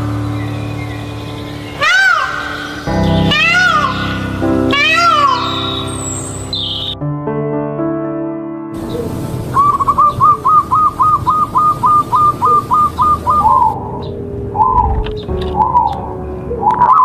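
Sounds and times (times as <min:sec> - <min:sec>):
steady outdoor hiss: 0:00.0 - 0:07.0, 0:08.8 - 0:17.0
bird whistling call: 0:08.9 - 0:13.8.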